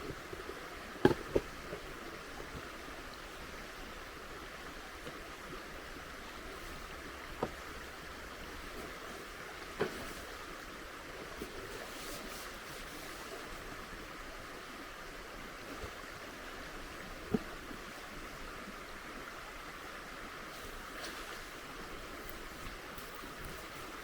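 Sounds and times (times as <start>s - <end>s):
flowing river water: 0.0s - 24.0s.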